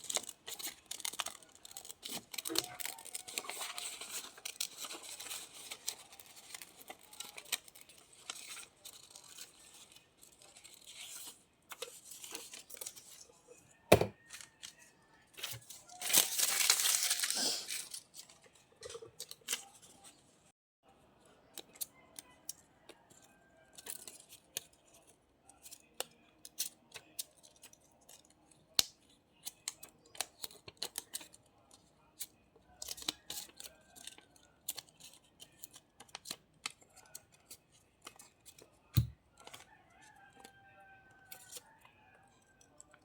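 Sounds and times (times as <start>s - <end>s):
scissors snipping paper: 0.0s - 13.1s, 23.7s - 39.6s
paper rustling: 0.0s - 13.3s, 15.4s - 20.2s.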